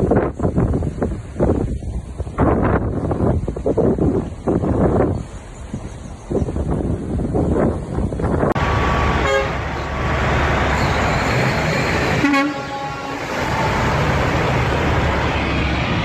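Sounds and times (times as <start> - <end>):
loud rushing of storm or flood: 6.6 - 16.0
short horn toots: 9.2 - 9.6, 10.8 - 13.9.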